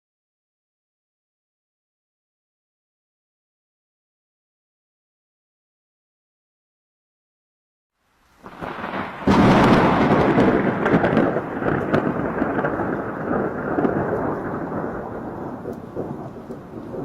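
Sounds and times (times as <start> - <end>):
rain falling: 8.0 - 17.0
thunder rumbling: 8.4 - 17.0.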